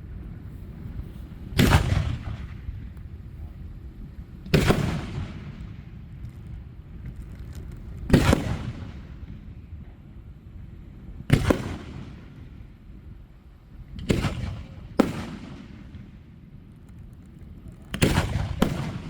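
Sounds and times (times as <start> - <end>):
fireworks bursting: 0.9 - 3.2, 4.5 - 9.4, 14.0 - 19.0.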